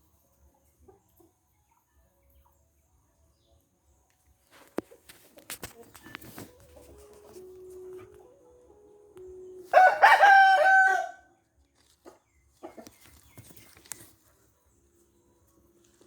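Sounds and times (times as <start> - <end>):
rooster crowing: 9.7 - 11.3.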